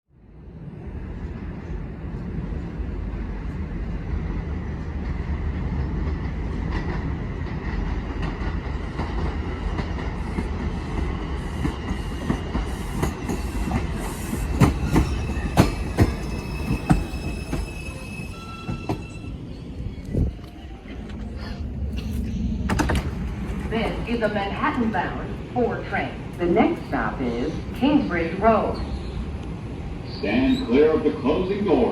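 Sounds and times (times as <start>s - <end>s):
train wheels rumbling on rail: 0.3s - 31.9s
wheel and brake squeal: 14.2s - 20.7s.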